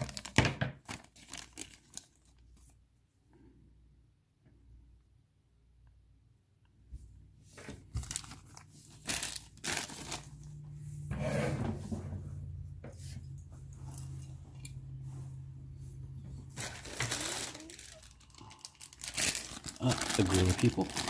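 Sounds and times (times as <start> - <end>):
plastic bags crinkling and tearing: 0.0 - 2.6, 7.9 - 10.6, 16.5 - 21.0.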